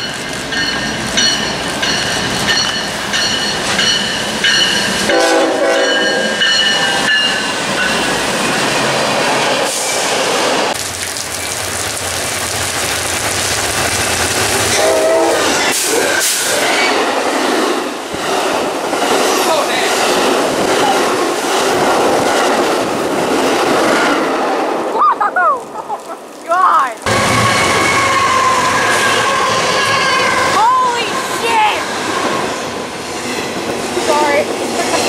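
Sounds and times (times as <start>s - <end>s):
locomotive horn: 5.1s - 7.1s, 14.7s - 15.6s, 27.1s - 31.4s
locomotive engine: 27.1s - 35.0s.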